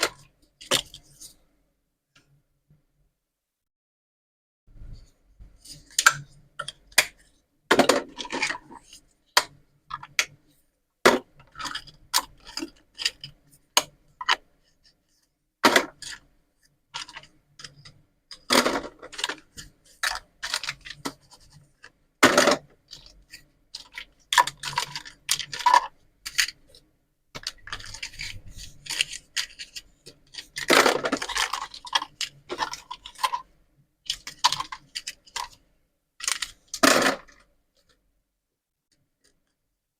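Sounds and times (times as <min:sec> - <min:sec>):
plastic toy pieces scraping: 0:07.9 - 0:09.0, 0:11.4 - 0:14.9, 0:17.0 - 0:26.8, 0:27.4 - 0:35.6, 0:36.2 - 0:37.5
plastic toy pieces clicking: 0:23.8 - 0:26.6, 0:27.4 - 0:33.5, 0:34.1 - 0:35.6, 0:36.2 - 0:37.5.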